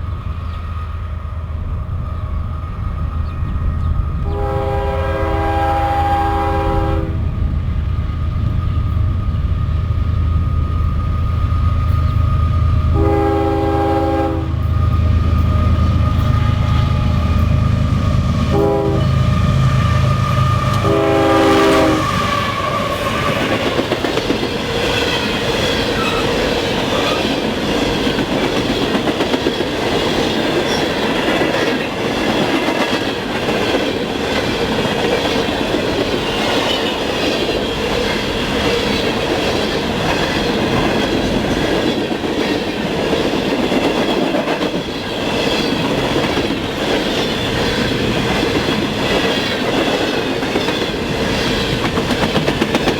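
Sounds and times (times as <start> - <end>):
train cars rolling past: 0.0 - 52.9
train horn blast: 4.2 - 7.3, 12.8 - 23.8
wheels clicking over rail joints: 21.6 - 52.9.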